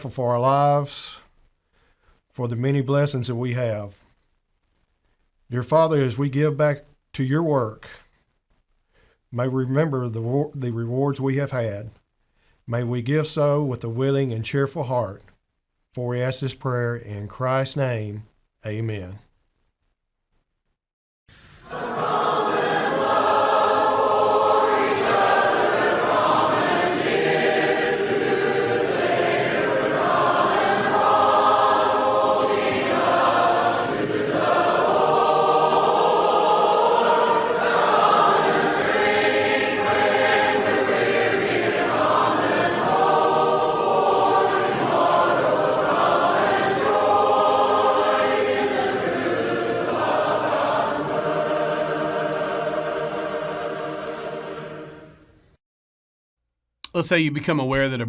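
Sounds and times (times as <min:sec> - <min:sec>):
congregation singing a hymn: 0:21.6 - 0:55.2.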